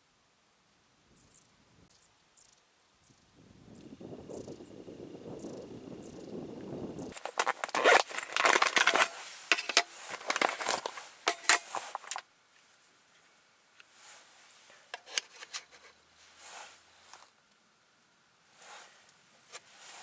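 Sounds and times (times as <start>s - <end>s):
crinkling and crackling: 7.1s - 17.6s
faint clicks and rustles: 7.1s - 17.6s.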